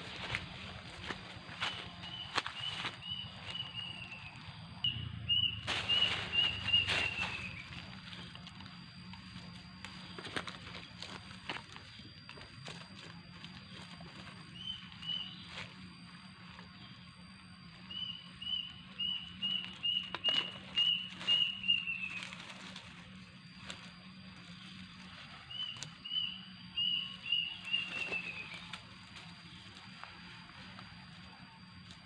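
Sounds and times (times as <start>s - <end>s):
bird calling high notes: 0.0s - 12.8s, 16.8s - 22.8s, 24.3s - 30.8s.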